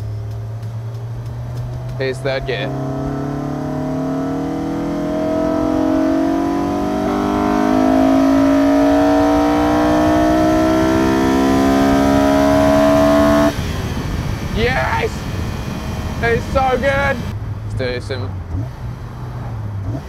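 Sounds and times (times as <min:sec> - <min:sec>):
car engine accelerating hard: 0:00.0 - 0:17.4, 0:18.4 - 0:20.0
loud induction noise: 0:01.9 - 0:17.4.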